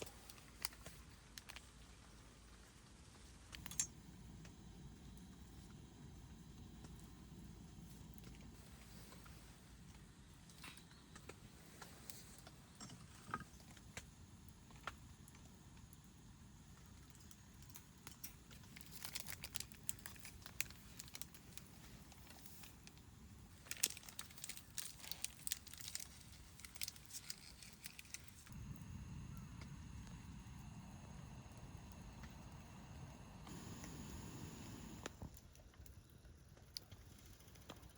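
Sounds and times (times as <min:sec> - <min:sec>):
faint background hiss: 0:00.0 - 0:36.5
packaging crinkling: 0:18.5 - 0:23.0, 0:23.6 - 0:28.5
low rumbling noise: 0:28.5 - 0:35.3.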